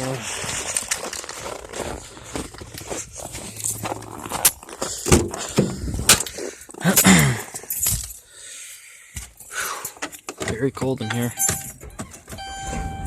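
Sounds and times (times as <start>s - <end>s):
car keys jangling: 3.4s - 4.6s, 7.4s - 8.3s, 9.3s - 13.0s
sharp clicks and knocks: 9.9s - 12.5s.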